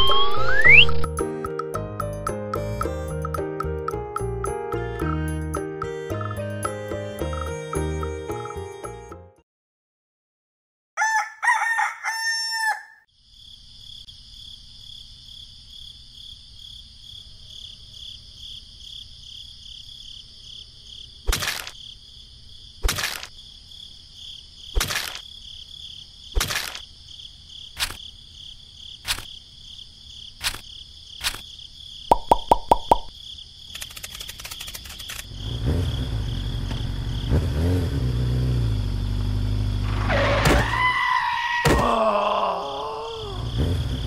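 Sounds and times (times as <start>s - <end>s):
rooster crowing: 11.0s - 13.1s
sharp clicks: 33.7s - 35.3s.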